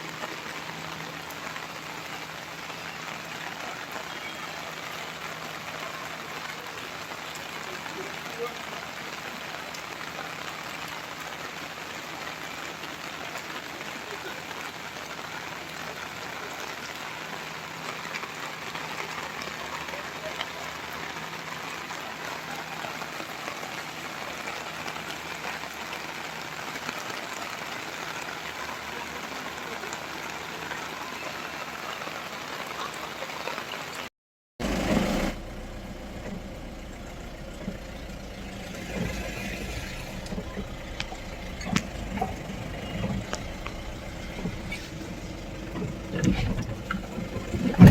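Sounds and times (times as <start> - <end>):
rain falling: 0.0 - 47.9
low steady rumble: 34.6 - 47.9.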